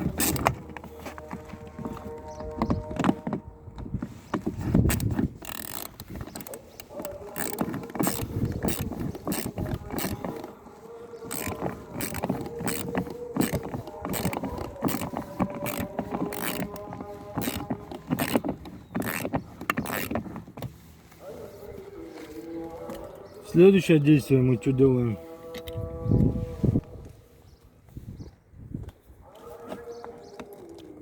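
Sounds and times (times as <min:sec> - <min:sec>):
hand tool ratcheting clicks: 0:00.0 - 0:00.6, 0:04.9 - 0:10.5, 0:11.3 - 0:20.2.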